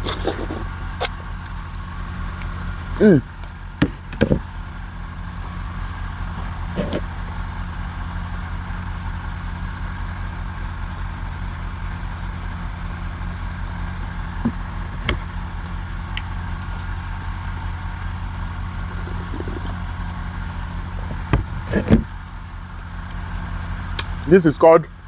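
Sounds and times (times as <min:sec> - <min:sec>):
motor humming: 0:13.8 - 0:22.4.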